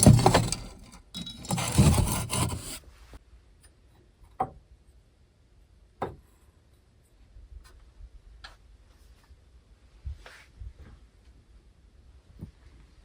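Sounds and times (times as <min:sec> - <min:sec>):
small objects clicking and knocking: 0:00.0 - 0:02.8.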